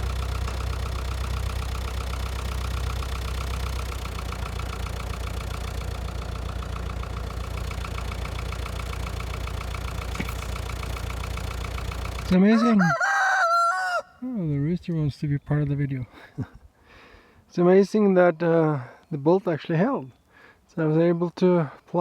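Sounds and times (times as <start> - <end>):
tractor engine idling: 0.0 - 14.1.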